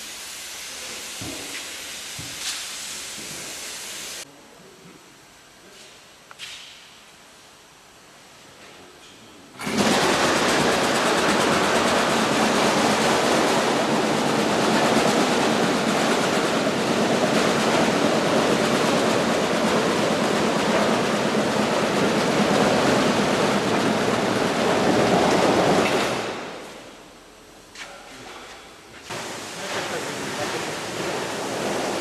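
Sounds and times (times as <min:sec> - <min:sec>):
welding arc crackling and hissing: 0:00.0 - 0:04.2.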